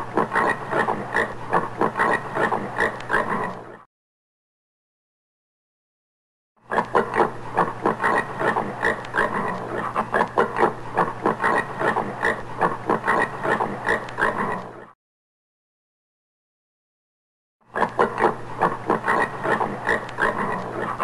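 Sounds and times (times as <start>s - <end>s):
warthog grunting: 17.8s - 21.0s.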